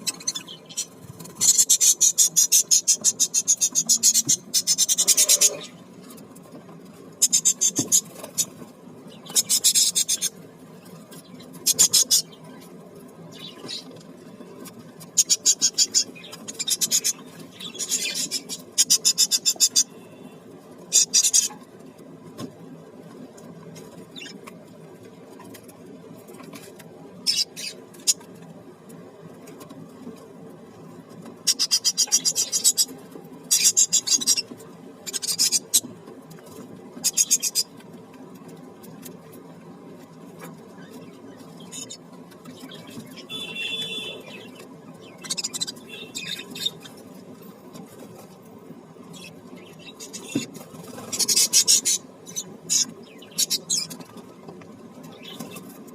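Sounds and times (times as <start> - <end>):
parrots making buzzing rattles: 0.0 - 6.2, 7.1 - 12.4, 14.6 - 20.0, 20.8 - 21.6, 31.4 - 37.8, 40.4 - 47.1, 49.1 - 54.2.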